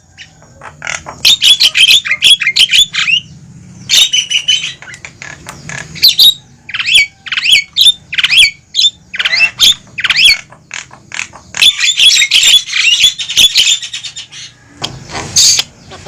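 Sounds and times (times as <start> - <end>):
mynas calling and chattering: 0.0 - 16.0.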